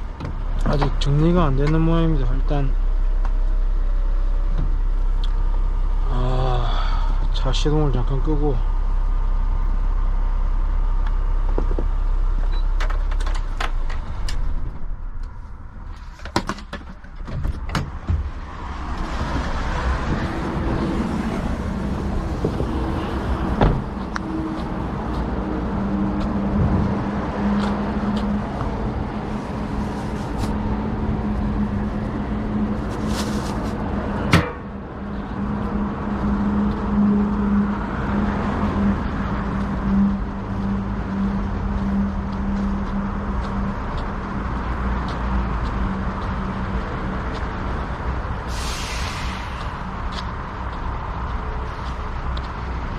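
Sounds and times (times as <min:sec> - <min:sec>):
engine running steadily: 0:00.0 - 0:52.9
truck engine running: 0:00.0 - 0:52.9
car doors clunking: 0:16.1 - 0:18.5, 0:23.3 - 0:24.1, 0:34.2 - 0:34.7.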